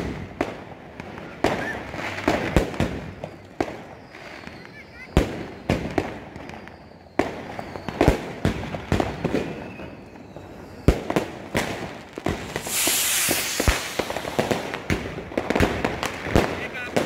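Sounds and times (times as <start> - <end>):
firecracker and rocket bangs: 0.0 - 17.0
rocket launching hiss: 12.3 - 15.0.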